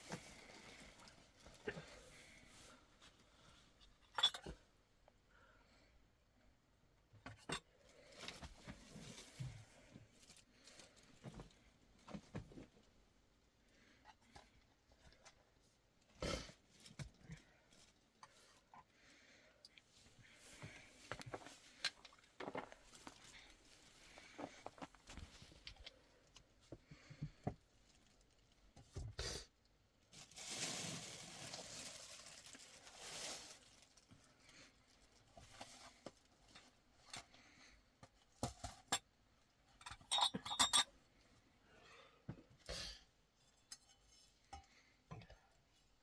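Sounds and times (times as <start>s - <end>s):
rustling: 30.2s - 34.1s.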